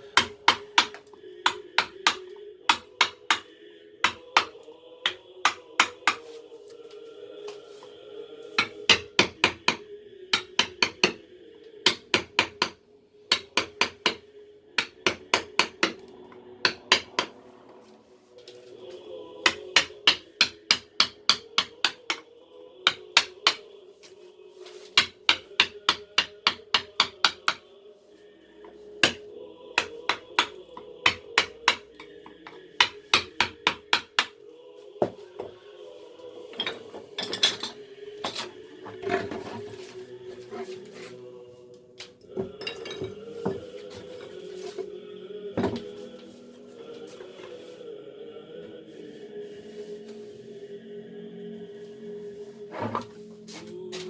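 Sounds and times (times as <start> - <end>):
mallet tapping chisel into wood: 0.2 - 3.4, 10.4 - 11.2, 11.9 - 14.2, 14.8 - 16.0, 16.6 - 17.4, 19.5 - 22.2, 25.0 - 27.6, 29.8 - 34.3.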